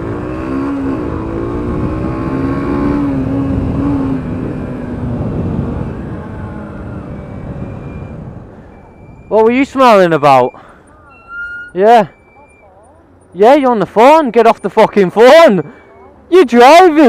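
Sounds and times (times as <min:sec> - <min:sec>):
wind rumble on microphone: 0:01.0 - 0:09.3.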